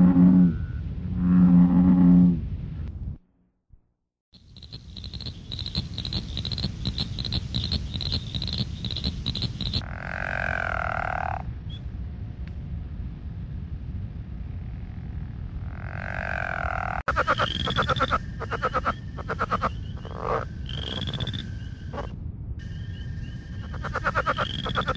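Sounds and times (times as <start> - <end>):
frogs high-pitched notes: 4.4 - 11.4, 15.9 - 24.9
frog buzzing call: 4.5 - 11.4, 15.7 - 22.1, 22.7 - 24.9.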